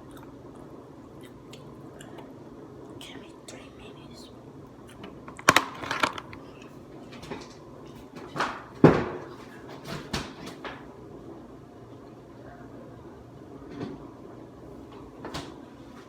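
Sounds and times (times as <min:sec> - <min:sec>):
objects knocking and clattering: 0:05.2 - 0:06.4.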